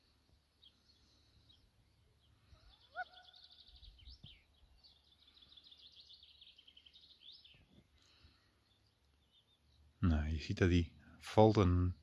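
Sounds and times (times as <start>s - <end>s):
bird trills and chirps: 0.6s - 7.8s
loud rising bird call: 2.6s - 3.9s.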